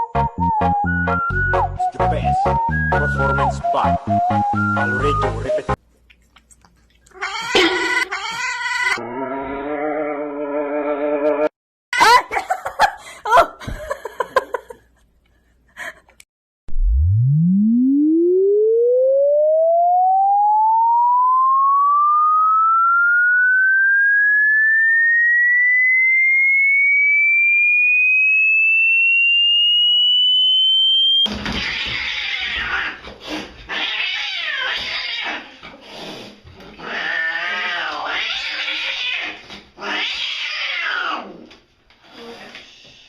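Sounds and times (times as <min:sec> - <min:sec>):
electronic tone rising in pitch: 0:00.0 - 0:05.8, 0:16.7 - 0:31.3
cat yowling and meowing: 0:07.1 - 0:09.0, 0:31.5 - 0:33.1, 0:33.7 - 0:35.6, 0:36.8 - 0:41.4.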